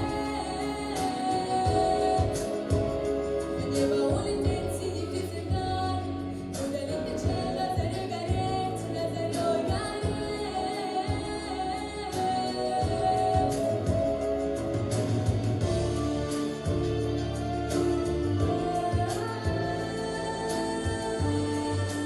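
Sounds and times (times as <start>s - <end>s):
girl singing: 0.0s - 3.0s, 3.6s - 14.1s, 18.4s - 22.0s
instrumental music with steady beat: 0.0s - 22.0s.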